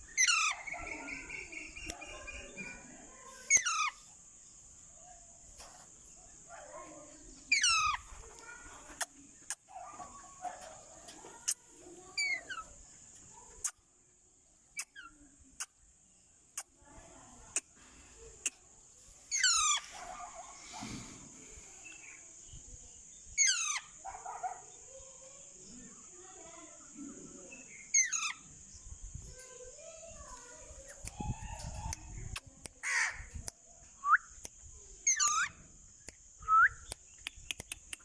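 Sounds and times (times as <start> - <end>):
soft low chatter: 0.0 - 38.0
parakeet screeching: 0.2 - 0.7, 3.5 - 4.0, 7.5 - 8.0, 19.3 - 19.8, 23.4 - 23.9, 35.1 - 35.5
sharp clicks: 36.8 - 38.0.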